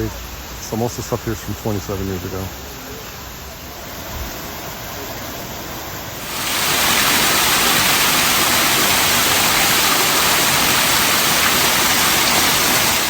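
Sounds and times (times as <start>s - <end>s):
steady rushing noise: 5.7s - 13.0s.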